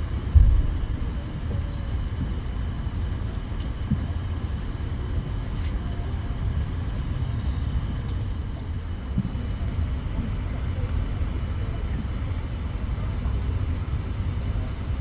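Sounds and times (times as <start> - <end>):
aircraft cabin rumble: 0.0 - 15.0.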